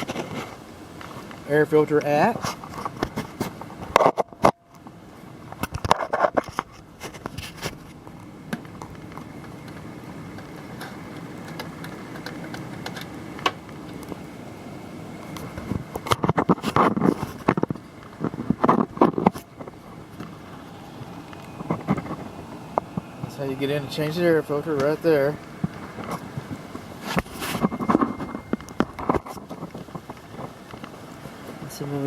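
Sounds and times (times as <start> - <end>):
steady low hum: 0.0 - 32.0
handling knocks and rustling: 15.2 - 31.7.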